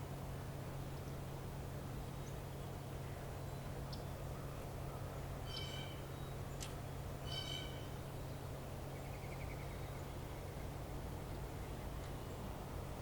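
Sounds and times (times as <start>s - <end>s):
steady low hum: 0.0s - 13.0s
short bird calls: 3.9s - 8.3s.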